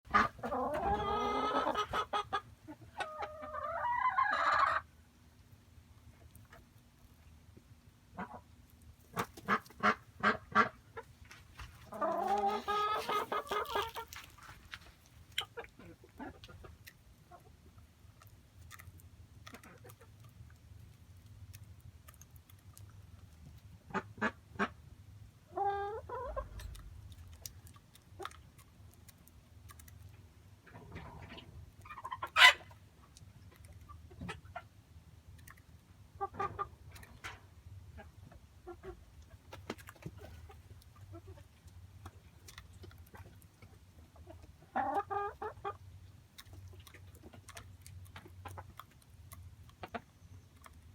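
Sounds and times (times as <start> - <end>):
harsh poultry call: 0.1 - 2.4
chickens clucking and squawking: 0.1 - 5.4, 8.0 - 20.5, 22.6 - 50.9.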